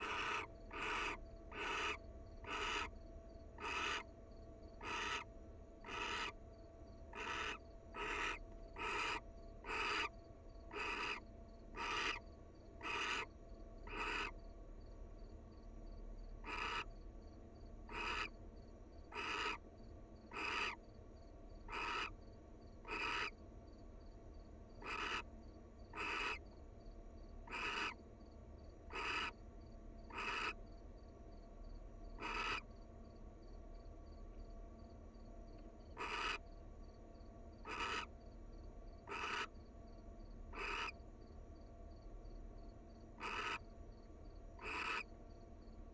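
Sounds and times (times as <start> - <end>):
owl hissing calls: 0.0 - 2.9, 3.6 - 4.1, 4.8 - 6.4, 7.1 - 10.1, 10.7 - 12.2, 12.8 - 14.4, 16.4 - 16.9, 17.9 - 18.4, 19.1 - 19.6, 20.3 - 20.8, 21.7 - 22.2, 22.8 - 23.4, 24.8 - 25.3, 25.9 - 26.4, 27.4 - 28.0, 28.9 - 29.4, 30.1 - 30.6, 32.2 - 32.7, 35.9 - 36.4, 37.6 - 38.1, 39.0 - 39.5, 40.5 - 41.0, 43.2 - 43.6, 44.6 - 45.1.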